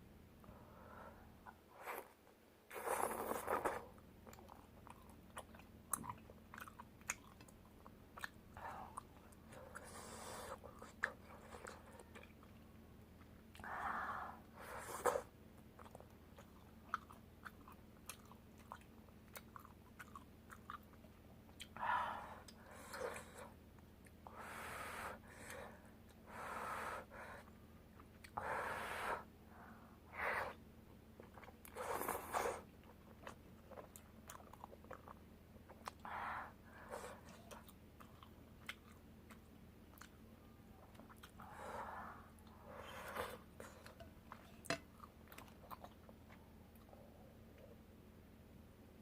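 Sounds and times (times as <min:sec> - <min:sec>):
close chewing and eating: 0:02.7 - 0:13.7, 0:14.4 - 0:21.8, 0:27.4 - 0:28.4, 0:30.5 - 0:47.8.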